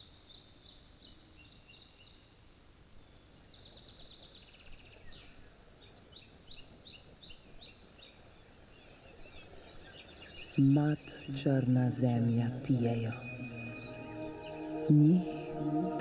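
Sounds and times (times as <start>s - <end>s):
low steady background noise: 0.0s - 16.0s
small birds chirping: 0.0s - 16.0s
bird trill: 9.8s - 16.0s.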